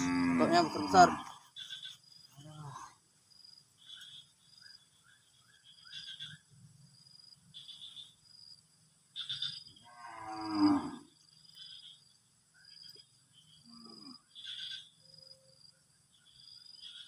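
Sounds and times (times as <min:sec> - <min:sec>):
cow mooing: 0:00.0 - 0:01.3, 0:09.9 - 0:11.1.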